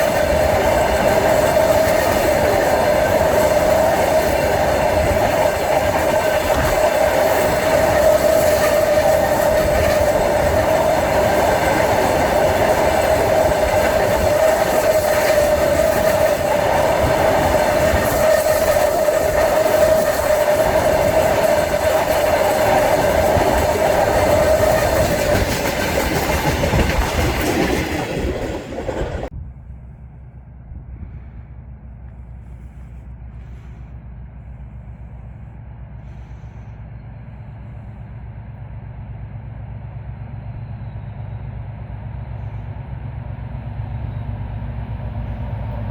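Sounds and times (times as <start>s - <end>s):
train wheels clacking on rail joints: 0.0s - 29.3s.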